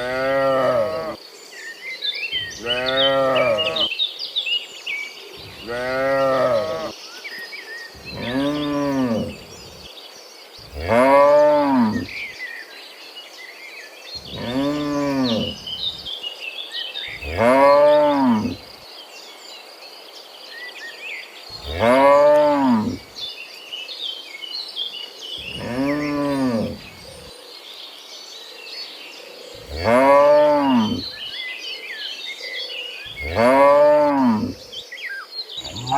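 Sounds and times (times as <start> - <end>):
cattle mooing: 0.0 - 1.2, 2.4 - 3.9, 5.4 - 6.9, 8.0 - 9.8, 10.7 - 12.2, 14.2 - 16.1, 17.2 - 18.7, 21.6 - 23.0, 25.4 - 27.0, 29.6 - 31.2, 33.1 - 34.6, 35.6 - 35.9.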